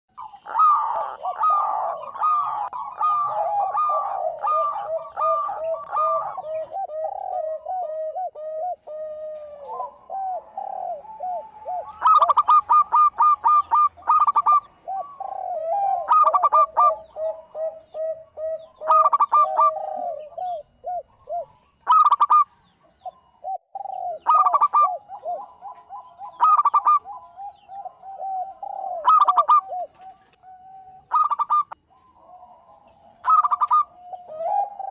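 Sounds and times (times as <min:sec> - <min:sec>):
dove cooing: 0:00.1 - 0:34.9
sharp bursts of bird notes: 0:00.1 - 0:34.9.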